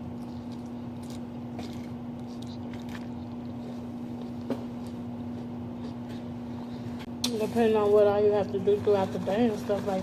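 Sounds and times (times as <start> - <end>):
person chewing: 0.0 - 6.4
steady low hum: 0.0 - 10.0.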